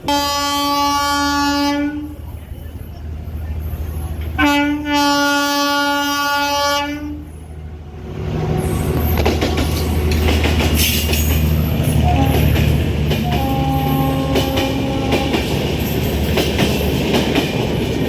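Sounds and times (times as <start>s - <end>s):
train horn blast: 0.0s - 2.2s, 4.4s - 7.4s, 12.0s - 15.6s
train passing with rushing: 0.0s - 18.0s
wheel clatter over rail joints: 8.5s - 18.0s.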